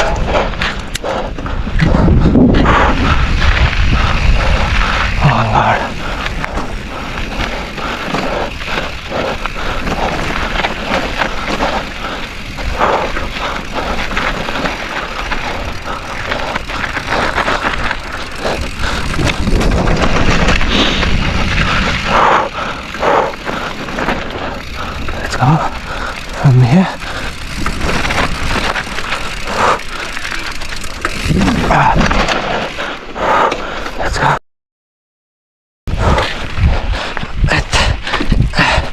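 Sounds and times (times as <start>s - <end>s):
bike knocking and rattling: 0.0s - 34.0s, 37.2s - 38.9s
tyres crunching over rocks: 5.9s - 22.0s, 22.7s - 32.5s.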